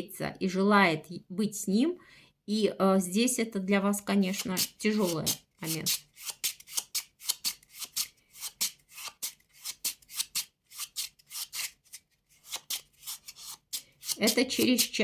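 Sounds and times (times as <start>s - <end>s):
playing cards snapping and flicking: 6.2s - 11.7s.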